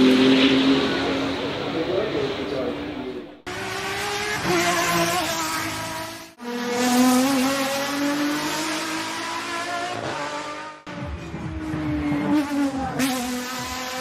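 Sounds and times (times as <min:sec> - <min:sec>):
car engine revving high: 0:03.4 - 0:14.0.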